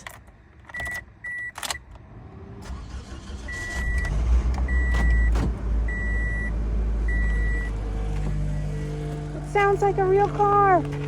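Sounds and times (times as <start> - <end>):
car warning chime beeping: 0.7 - 1.8, 3.3 - 7.8
car engine exhaust rumble: 2.1 - 11.0.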